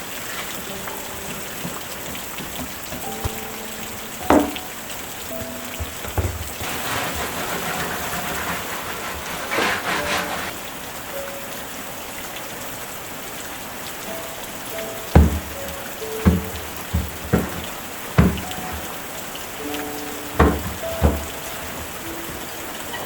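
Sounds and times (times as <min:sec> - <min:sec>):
rain falling on a surface: 0:00.0 - 0:23.0
sharp knocks: 0:01.3 - 0:03.6, 0:04.2 - 0:04.7, 0:05.4 - 0:10.5, 0:15.2 - 0:19.0, 0:20.2 - 0:22.6.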